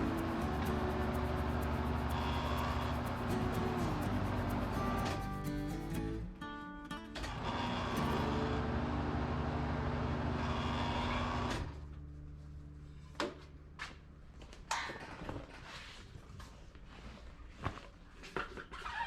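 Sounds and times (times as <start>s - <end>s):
tire changer motor scraping: 0.0s - 5.2s, 7.4s - 11.8s
quiet hum: 0.0s - 5.9s.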